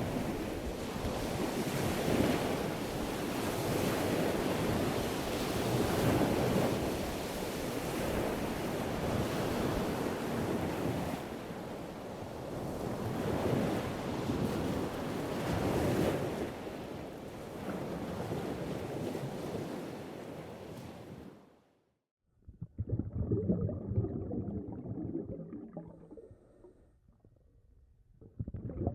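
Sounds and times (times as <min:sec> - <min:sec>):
wind: 0:00.0 - 0:21.7.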